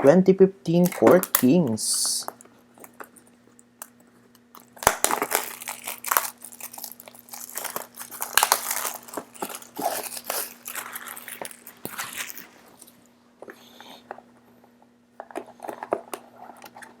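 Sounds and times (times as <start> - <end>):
plastic wrap crinkling: 0.8 - 1.6, 2.2 - 13.0.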